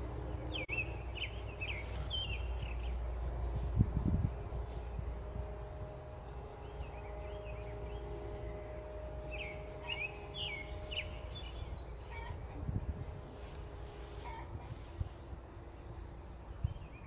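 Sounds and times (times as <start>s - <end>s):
small birds chirping: 0.0s - 12.9s
faint steady hum: 0.0s - 17.0s.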